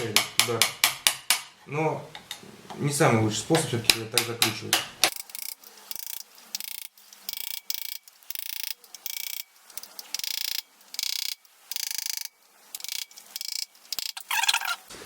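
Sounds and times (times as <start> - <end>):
socket ratchet clicking: 4.2 - 14.3.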